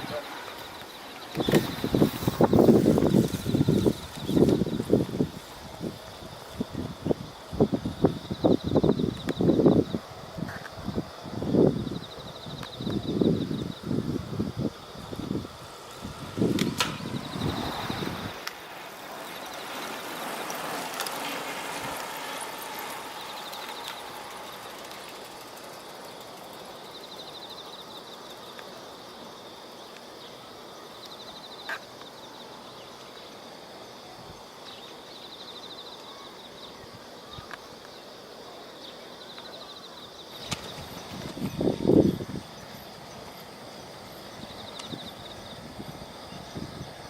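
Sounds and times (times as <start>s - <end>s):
steady rushing noise: 0.0s - 28.4s.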